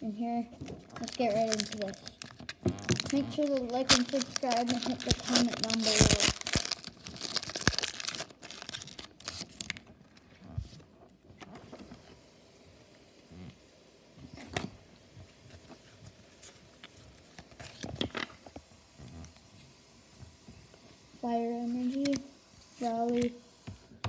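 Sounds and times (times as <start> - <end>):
foil wrapper crinkling: 0.8 - 10.0.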